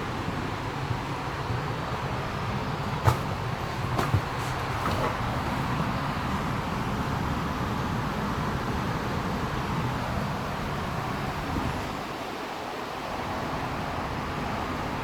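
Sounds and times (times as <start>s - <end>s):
faint knocks: 3.0s - 5.8s.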